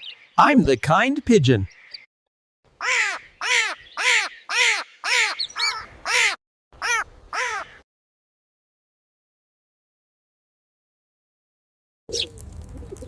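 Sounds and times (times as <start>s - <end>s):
bird cawing: 2.7s - 7.8s.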